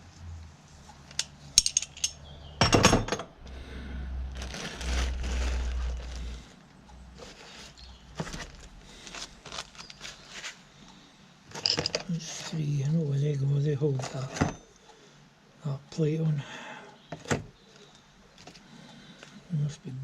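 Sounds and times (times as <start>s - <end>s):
steel bolts and tools clinking: 1.1s - 3.3s, 11.5s - 12.5s.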